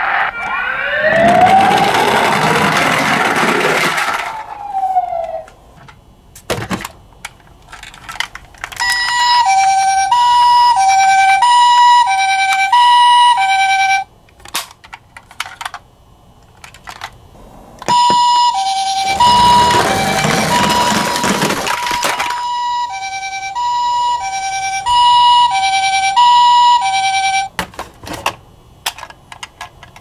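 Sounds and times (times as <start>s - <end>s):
toy two-tone siren: 0.0s - 5.5s, 8.8s - 14.1s, 17.9s - 27.5s
toy electronic wail siren: 0.0s - 5.6s, 8.8s - 14.1s, 17.8s - 27.5s.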